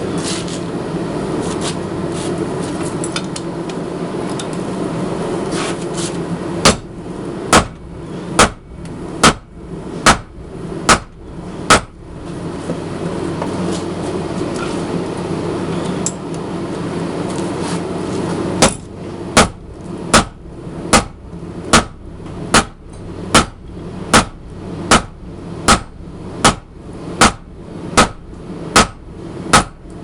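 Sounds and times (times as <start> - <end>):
sledgehammer blows on metal: 7.5 - 8.6, 9.2 - 10.3, 10.9 - 12.0, 18.6 - 29.9.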